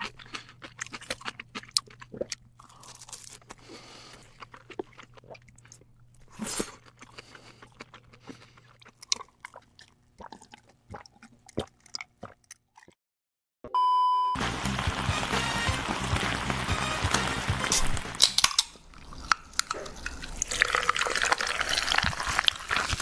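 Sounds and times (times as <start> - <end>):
chewing and crunching crab: 0.0 - 13.0, 17.6 - 23.0.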